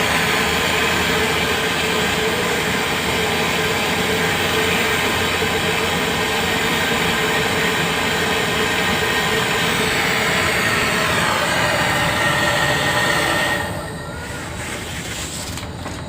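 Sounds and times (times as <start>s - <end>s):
machine running with hum: 0.0s - 16.0s.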